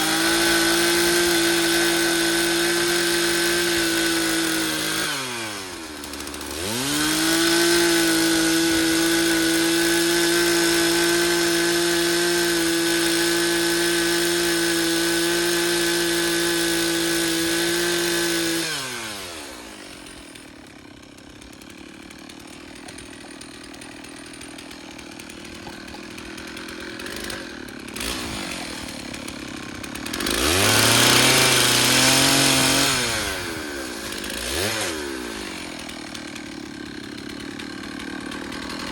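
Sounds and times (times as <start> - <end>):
chainsaw revving and idling: 0.0 - 38.9.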